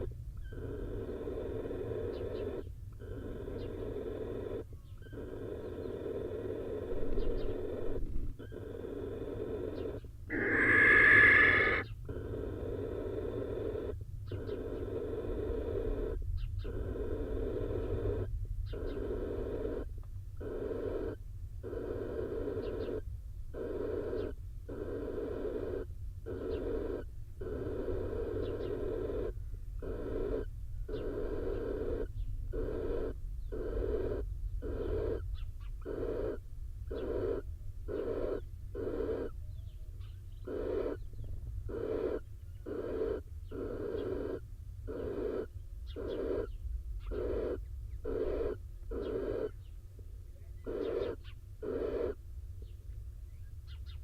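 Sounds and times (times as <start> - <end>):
barn owl rasping hiss calls: 0.0 - 49.7, 50.5 - 52.2
barn owl screech: 6.4 - 16.0, 41.7 - 49.6, 50.7 - 52.2.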